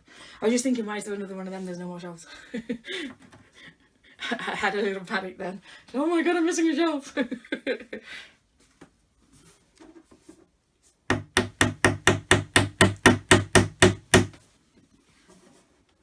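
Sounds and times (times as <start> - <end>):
hammer tapping wooden dowels: 11.1 - 14.4.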